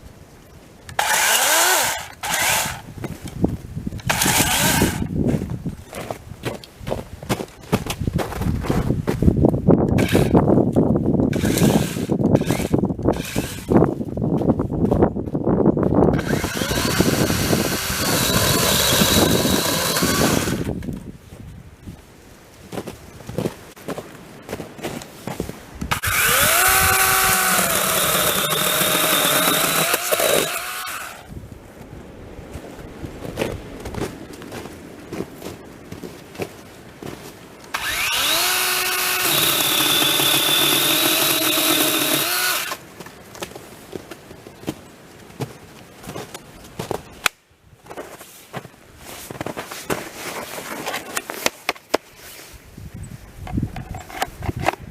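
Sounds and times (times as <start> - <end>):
chainsaw engine running high speed: 1.0 - 2.8, 4.1 - 5.0, 16.2 - 20.7, 25.9 - 31.2, 37.8 - 42.8
chainsaw rattling and knocking: 1.0 - 2.8, 4.0 - 5.0, 10.0 - 10.4, 11.3 - 13.7, 16.1 - 20.8, 25.9 - 31.2, 37.8 - 42.8.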